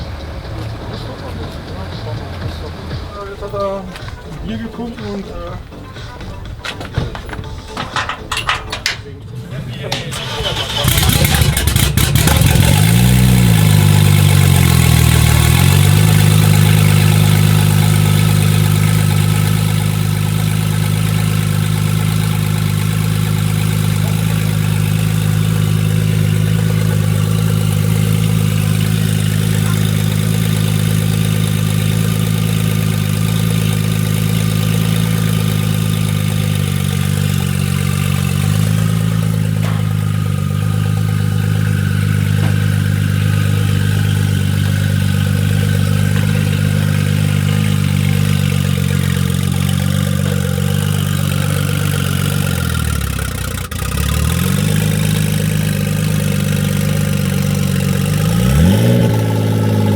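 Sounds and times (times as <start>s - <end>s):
car engine revving and idling: 0.0s - 59.9s.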